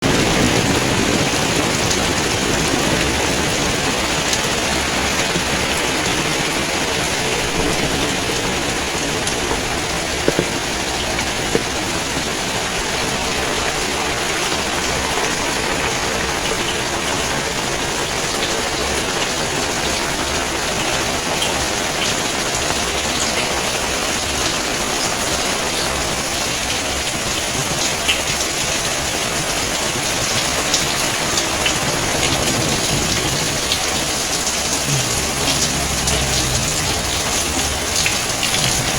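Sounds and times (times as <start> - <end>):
steady rain hiss: 0.0 - 38.9
sharp drip taps: 9.3 - 12.4.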